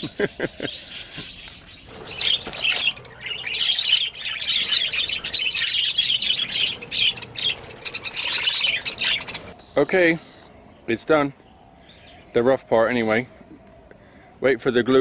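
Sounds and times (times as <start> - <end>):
budgerigars chattering: 0.6 - 9.8.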